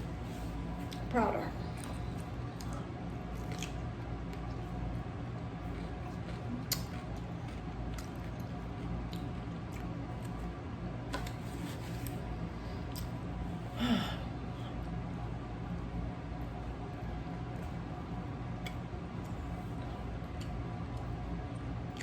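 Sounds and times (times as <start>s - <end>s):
steady low hum: 0.0s - 22.0s
person chewing: 1.7s - 4.8s, 5.6s - 10.5s.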